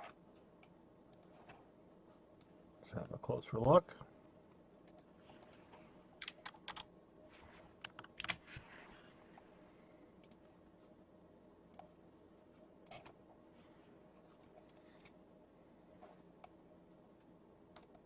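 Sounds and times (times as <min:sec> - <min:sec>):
faint room hum: 0:00.0 - 0:18.0
keyboard typing: 0:04.8 - 0:06.9, 0:07.8 - 0:08.5.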